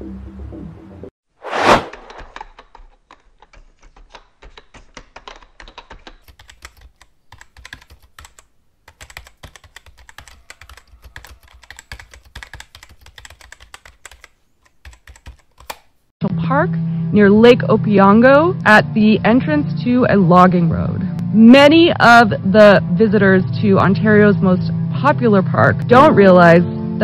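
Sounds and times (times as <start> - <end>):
short whoosh: 1.4 - 2.2
typing on computer keyboard: 2.2 - 15.9.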